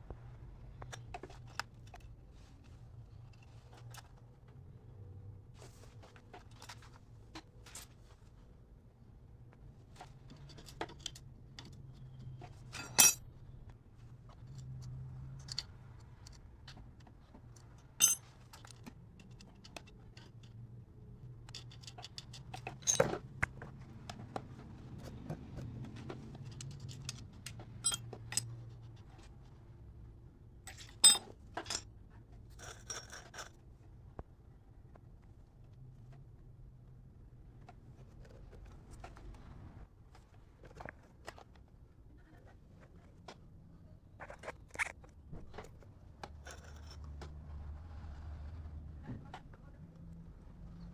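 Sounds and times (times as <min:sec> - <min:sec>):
metal tools clicking and tapping: 0:10.3 - 0:13.2, 0:17.6 - 0:20.6, 0:21.4 - 0:23.7, 0:26.4 - 0:28.6, 0:30.7 - 0:31.8.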